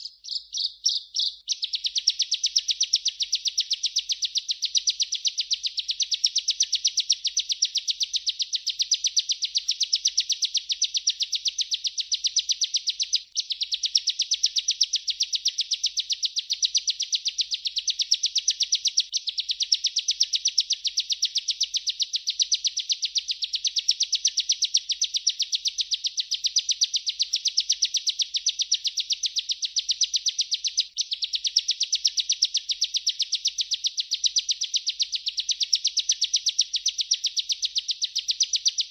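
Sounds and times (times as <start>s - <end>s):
bird singing rapid high chirps: 0.0s - 38.9s.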